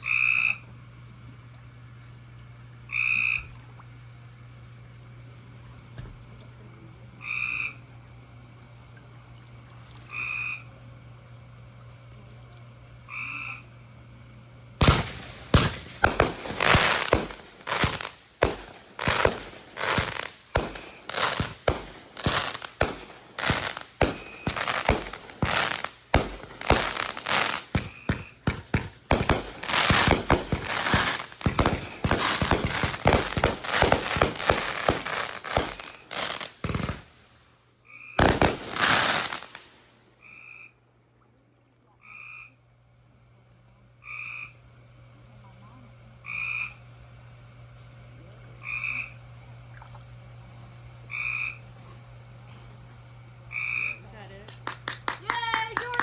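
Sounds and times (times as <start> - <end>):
frogs croaking: 0.0 - 1.2, 2.3 - 5.0, 6.9 - 42.7, 43.9 - 44.8, 46.2 - 47.0, 48.5 - 52.1, 53.4 - 55.1
fireworks banging: 14.8 - 37.6, 38.2 - 39.8, 54.5 - 56.0.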